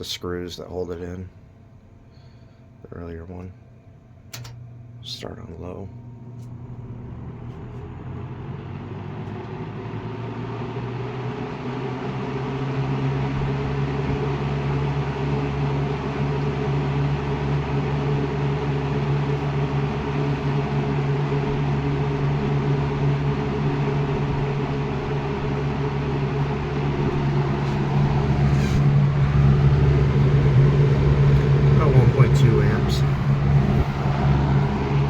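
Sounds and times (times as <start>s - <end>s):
box fan motor hum: 0.7s - 35.0s
rush of air from fan blades: 12.1s - 35.0s.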